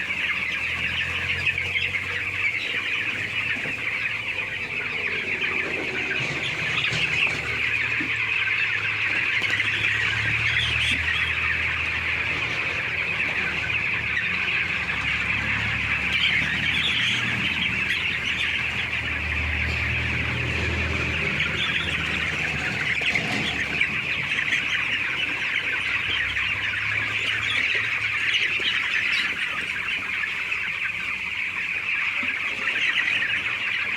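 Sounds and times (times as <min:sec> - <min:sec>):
flock of chickens calling: 0:00.0 - 0:33.9.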